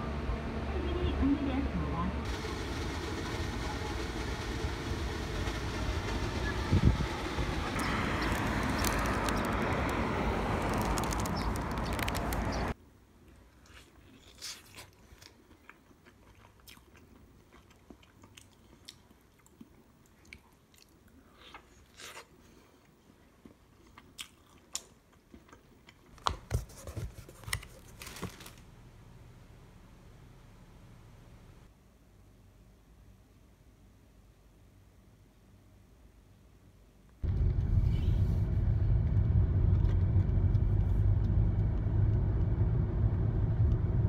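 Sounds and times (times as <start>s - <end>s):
traffic noise: 0.0s - 12.8s, 37.2s - 44.0s
chewing pizza: 13.2s - 26.5s.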